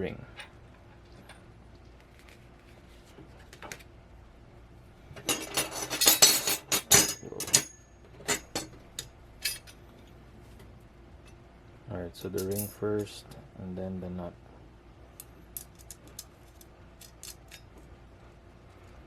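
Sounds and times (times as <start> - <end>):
small metal hardware clinking: 5.3 - 9.8, 12.2 - 13.2, 15.2 - 17.8.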